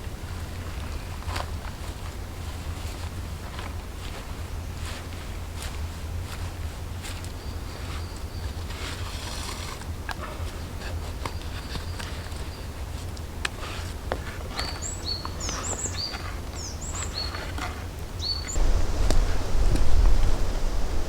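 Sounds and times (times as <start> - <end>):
songbird singing: 7.2 - 9.1, 14.1 - 21.0
steady low rumble: 18.6 - 21.0.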